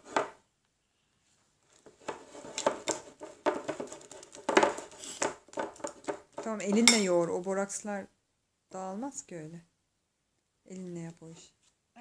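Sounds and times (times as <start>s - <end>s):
utensil stirring slime in bowl: 1.8s - 7.3s.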